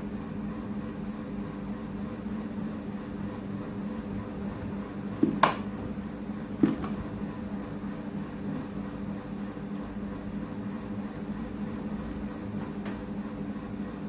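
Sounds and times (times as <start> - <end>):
sharp clicks or knocks: 5.2 - 5.7, 6.6 - 7.0.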